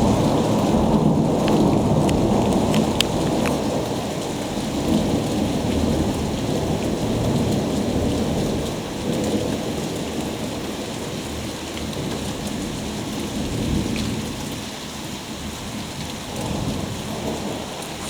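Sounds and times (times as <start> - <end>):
thunder rumbling: 0.0 - 11.1
steady rain: 0.0 - 18.0.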